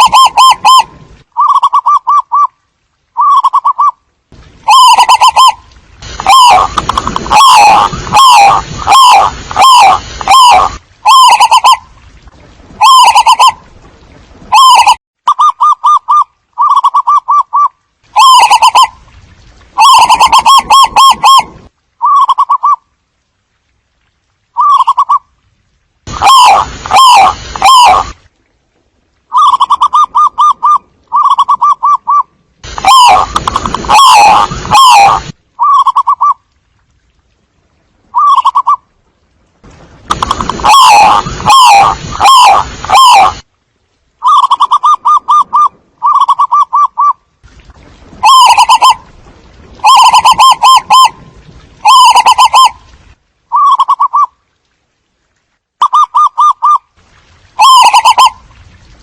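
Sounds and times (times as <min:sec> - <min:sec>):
doves cooing: 0:26.2 - 0:28.1, 0:29.3 - 0:36.4, 0:40.3 - 0:43.4, 0:48.2 - 0:49.0, 0:49.8 - 0:51.2.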